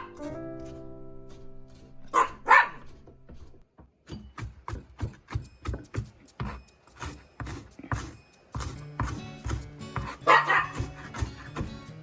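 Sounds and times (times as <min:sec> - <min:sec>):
dog barking: 0:00.0 - 0:00.2, 0:02.1 - 0:03.0, 0:10.2 - 0:11.0
background music: 0:00.0 - 0:03.5, 0:05.1 - 0:12.0.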